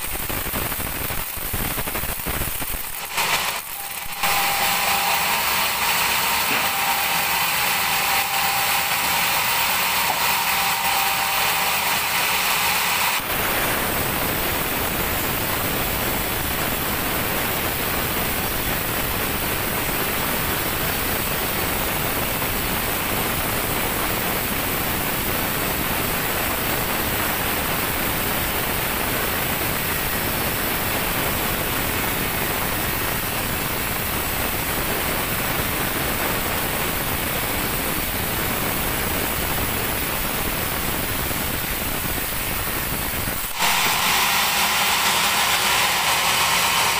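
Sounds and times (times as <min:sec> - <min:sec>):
band saw whining through wood: 0:02.7 - 0:14.6, 0:43.4 - 0:46.9.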